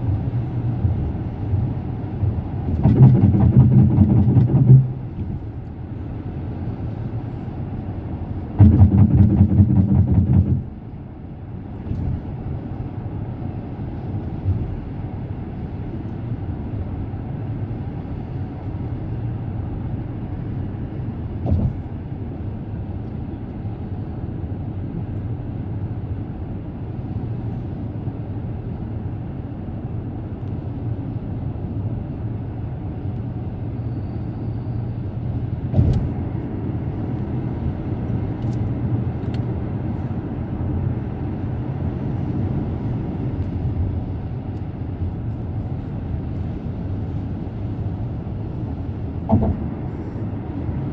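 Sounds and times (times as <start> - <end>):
loud rapid rattling rumble: 0.0 - 7.4, 8.0 - 12.8, 35.4 - 50.9
road and tyre rumble: 0.0 - 50.9
single thump: 35.7 - 36.2, 49.3 - 49.8.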